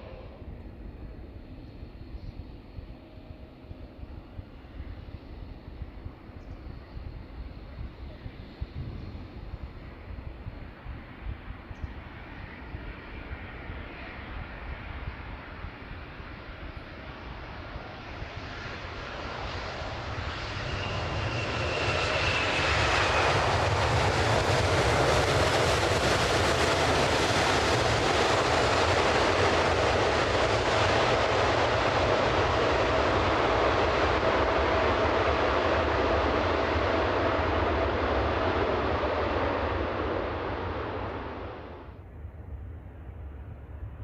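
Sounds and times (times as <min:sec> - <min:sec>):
jet engines roaring: 0:07.4 - 0:42.0.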